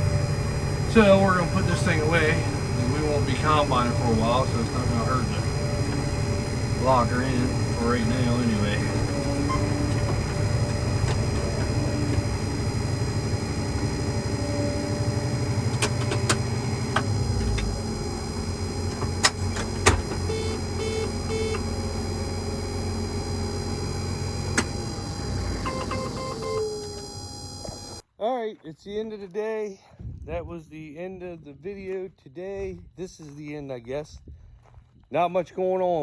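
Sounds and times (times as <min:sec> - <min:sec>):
combine engine running: 0:00.0 - 0:28.0
sharp clicks and knocks: 0:15.7 - 0:17.7, 0:18.9 - 0:20.3
short beeps: 0:20.2 - 0:21.6, 0:25.6 - 0:27.0.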